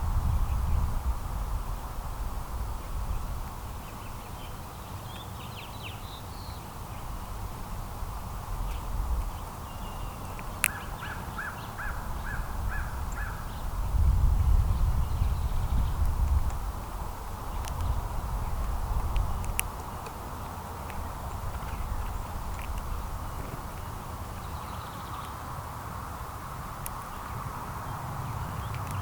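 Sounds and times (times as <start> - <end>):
small birds chirping: 2.6 - 29.0
short bird calls: 9.7 - 13.7.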